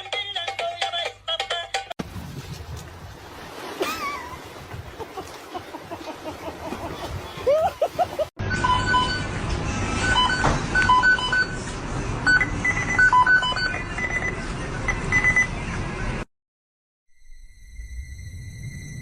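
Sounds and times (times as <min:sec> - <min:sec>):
short electronic beeps: 0:08.4 - 0:09.3, 0:12.2 - 0:15.5.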